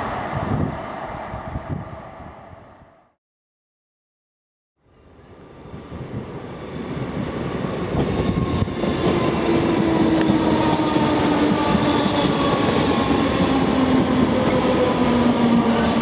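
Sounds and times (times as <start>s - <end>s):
train wheel and track noise: 0.0s - 2.9s, 5.0s - 16.0s
train steady hum: 4.8s - 16.0s.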